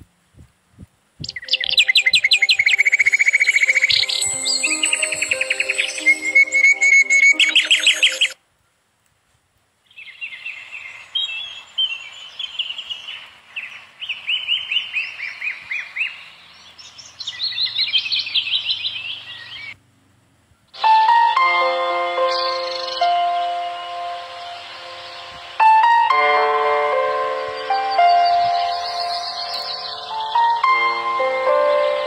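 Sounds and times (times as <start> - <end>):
songbirds chirping and trilling: 1.2 - 8.4, 9.8 - 19.8, 20.4 - 32.0
music with chime-like notes: 2.4 - 8.4, 20.8 - 32.0.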